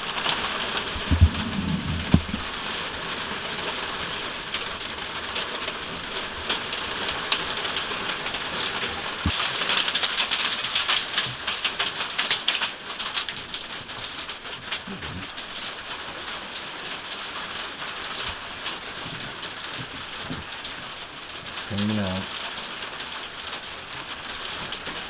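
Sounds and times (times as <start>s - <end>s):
hail clicking on surfaces: 0.0s - 25.0s
dull thumps: 0.3s - 2.9s.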